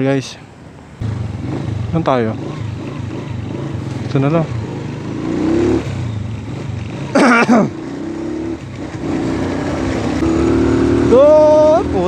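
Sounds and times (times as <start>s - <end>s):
motorcycle engine running: 1.0s - 12.0s.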